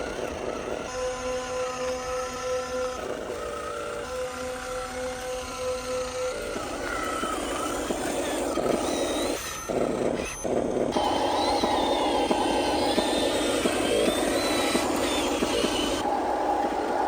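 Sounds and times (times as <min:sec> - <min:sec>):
small electric motors whining: 0:00.0 - 0:17.0
gritty grinding noise: 0:06.6 - 0:17.0.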